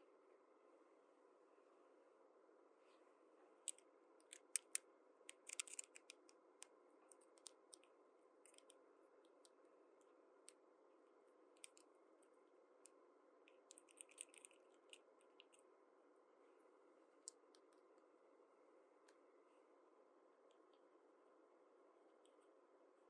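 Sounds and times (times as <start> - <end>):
plastic toy pieces clicking: 3.7 - 6.2, 13.7 - 14.6.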